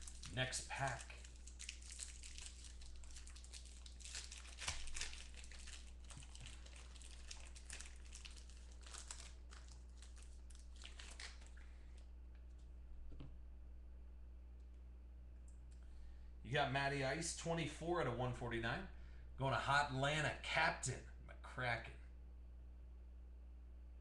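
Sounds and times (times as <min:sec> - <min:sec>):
wrapper crinkling and tearing: 0:00.0 - 0:11.6
low steady hum: 0:00.0 - 0:24.0.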